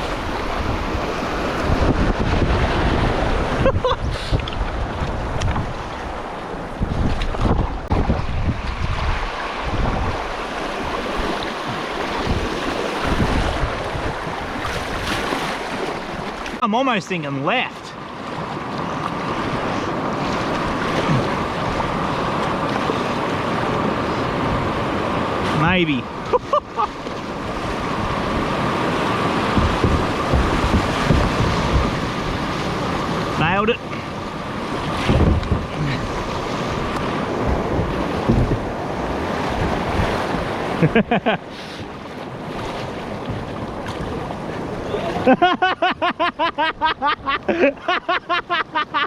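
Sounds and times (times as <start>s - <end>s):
wind rumbling on microphone: 0.0s - 16.6s, 18.1s - 41.1s
river water rushing around kayak: 0.0s - 49.0s
low bumps: 28.0s - 32.9s, 34.8s - 38.8s.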